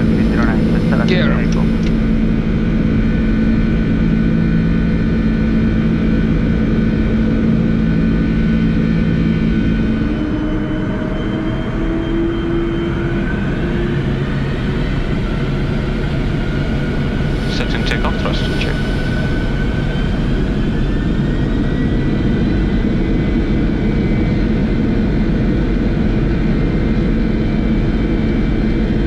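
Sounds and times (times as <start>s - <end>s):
jet engines at takeoff thrust: 0.0s - 2.0s, 3.5s - 29.0s
rising engine whine: 0.0s - 2.1s.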